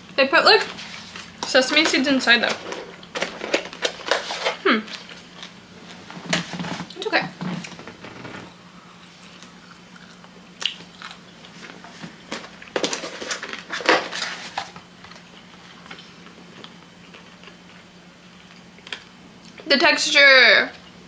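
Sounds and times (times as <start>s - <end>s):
person chewing food: 7.4s - 13.5s, 14.6s - 19.6s.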